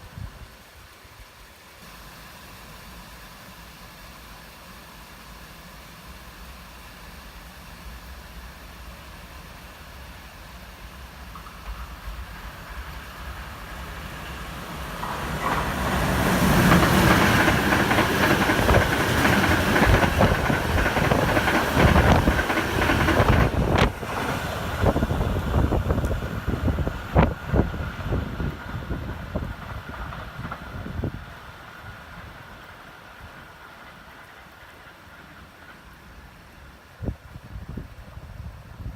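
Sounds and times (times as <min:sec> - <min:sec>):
train wheels clattering on rails: 0:10.9 - 0:36.7.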